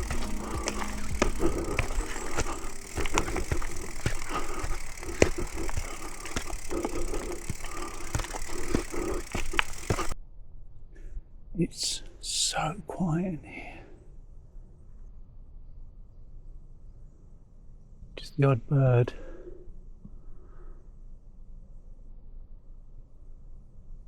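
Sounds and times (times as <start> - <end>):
bike knocking and rattling: 0.0 - 10.2
bike tyres crunching on stones: 0.0 - 10.2.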